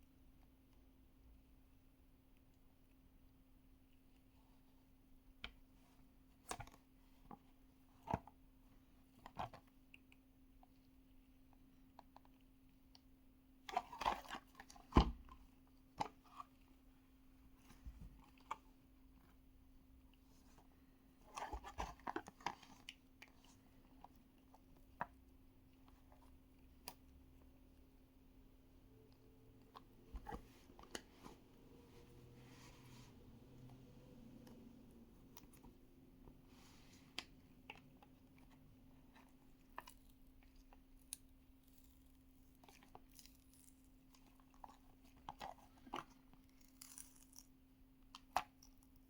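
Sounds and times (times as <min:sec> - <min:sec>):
faint steady hum: 0:00.0 - 0:49.0
faint hum: 0:23.8 - 0:40.5.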